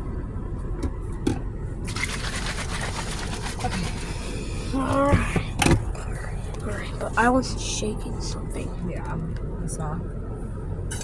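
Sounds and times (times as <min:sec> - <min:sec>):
low steady hum: 0:00.0 - 0:11.0
liquid spraying against car: 0:01.9 - 0:04.7.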